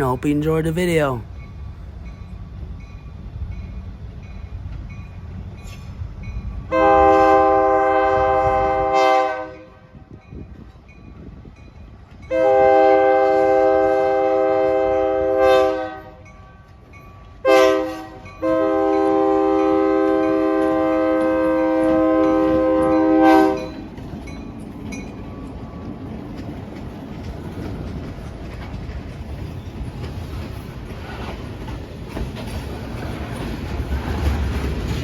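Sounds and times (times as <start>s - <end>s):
train rumbling and clicking: 0.0s - 9.0s, 9.9s - 15.2s, 16.0s - 17.5s, 18.1s - 35.0s
locomotive air horn: 6.7s - 9.9s, 12.3s - 16.2s, 17.4s - 23.7s.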